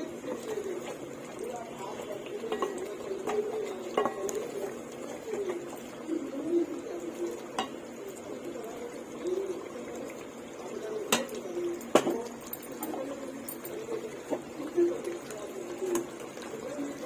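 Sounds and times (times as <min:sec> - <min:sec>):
spoon knocking against pot: 0:02.5 - 0:04.5, 0:07.5 - 0:07.8, 0:11.1 - 0:12.9
pigeons cooing: 0:02.8 - 0:10.4.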